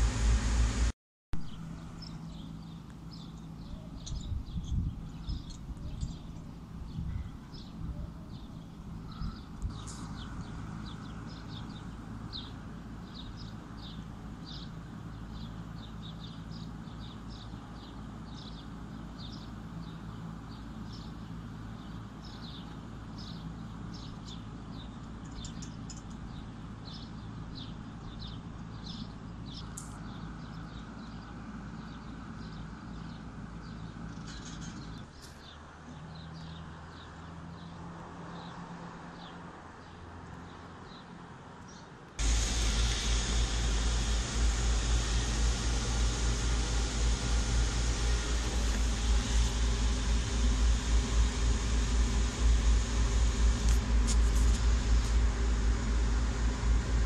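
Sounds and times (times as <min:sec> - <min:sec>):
low machine hum: 0:00.0 - 0:34.4, 0:42.2 - 0:57.0
small birds chirping: 0:01.5 - 0:38.6.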